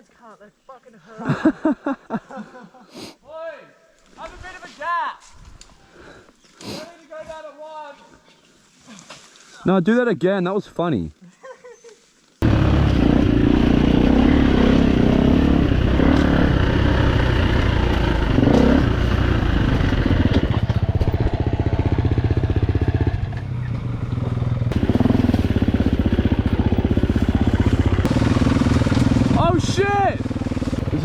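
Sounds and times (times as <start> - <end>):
dirt bike engine running under load: 12.4 - 31.0.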